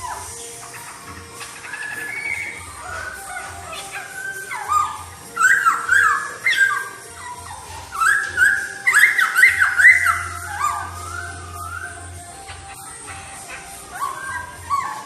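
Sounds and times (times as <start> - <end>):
bird singing whistled notes: 0.0 - 15.0.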